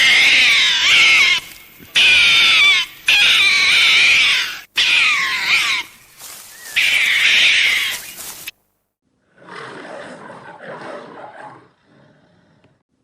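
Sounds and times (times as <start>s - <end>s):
animal calling loudly: 0.0s - 8.5s.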